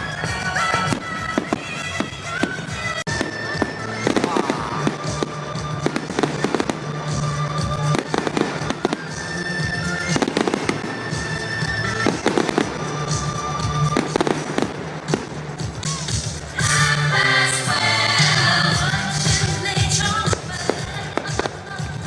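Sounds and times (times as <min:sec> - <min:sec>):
fireworks bangs and crackling: 0:00.0 - 0:22.0
music with long held notes: 0:00.0 - 0:22.0.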